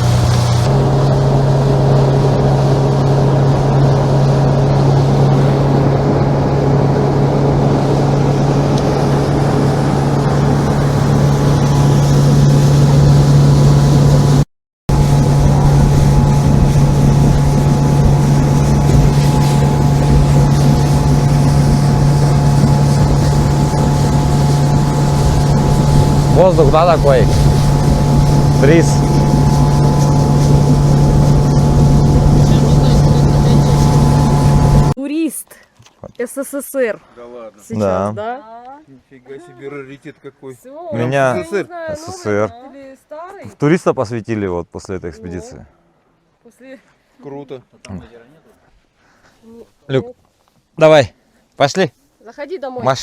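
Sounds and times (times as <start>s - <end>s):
motorboat engine droning: 0.0s - 35.0s
rush of wind and water: 0.0s - 35.0s.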